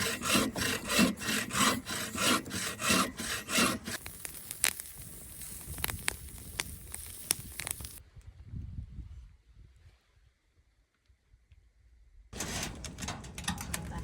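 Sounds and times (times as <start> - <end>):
saw cutting through wood: 0.0 - 4.1
wood snapping and crackling: 3.6 - 8.0.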